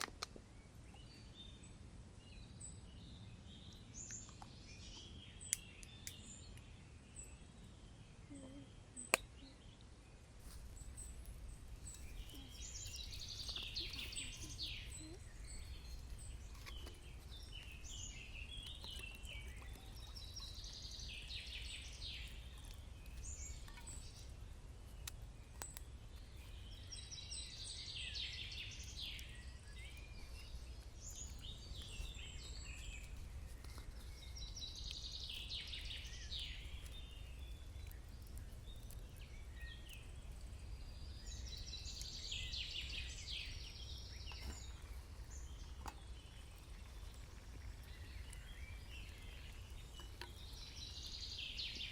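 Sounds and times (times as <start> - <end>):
bird chirping: 10.4 - 51.9.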